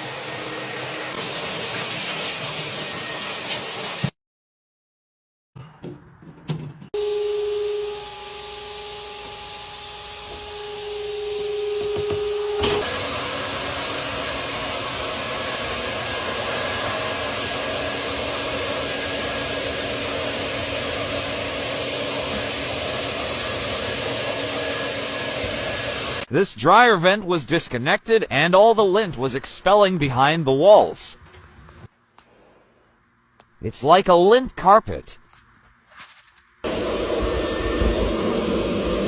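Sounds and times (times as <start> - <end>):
vacuum motor whining: 7.0 - 26.3, 36.6 - 39.0.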